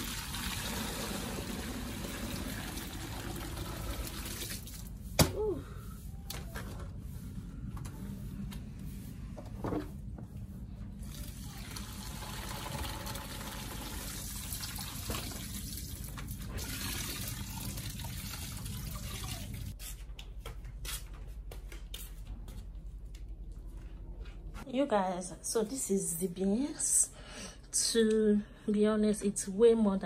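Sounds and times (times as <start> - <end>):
water running from a tap: 0.0 - 4.8, 11.4 - 19.8.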